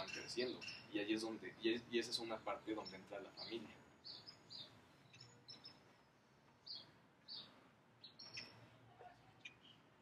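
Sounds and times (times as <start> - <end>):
faint bird chirps: 2.5 - 10.0.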